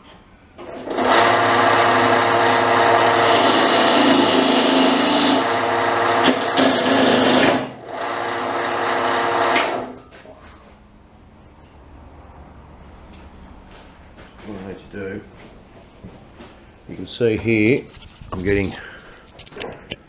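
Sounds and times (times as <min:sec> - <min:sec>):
wood lathe chisel cutting wood: 0:00.6 - 0:09.9.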